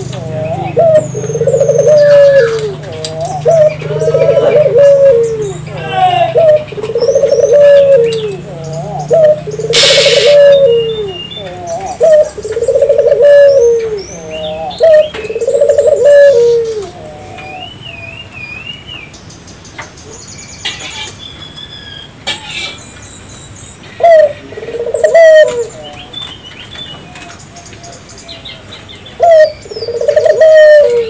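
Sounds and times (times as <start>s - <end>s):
doves cooing: 0.0s - 17.8s, 23.9s - 26.4s, 28.6s - 31.0s
small birds chirping: 0.0s - 31.0s.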